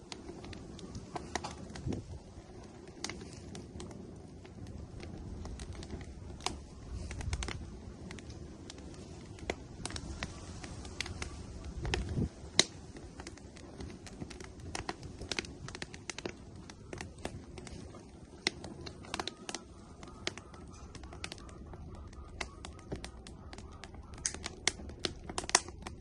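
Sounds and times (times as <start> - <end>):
firewood crackling and popping: 0.0 - 26.0.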